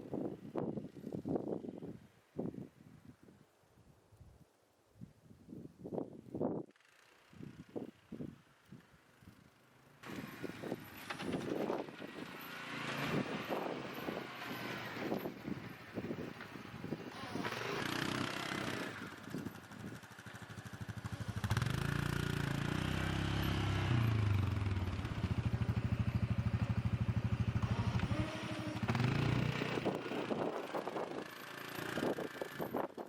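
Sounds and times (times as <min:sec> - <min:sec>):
vehicle engine running: 0:17.2 - 0:33.0.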